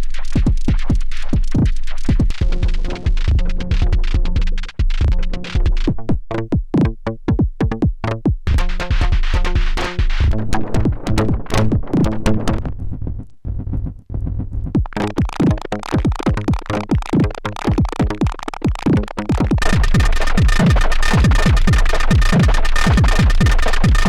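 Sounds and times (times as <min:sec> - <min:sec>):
electronic drum pattern: 0:02.2 - 0:24.0
low pitched synth tones: 0:19.6 - 0:24.0.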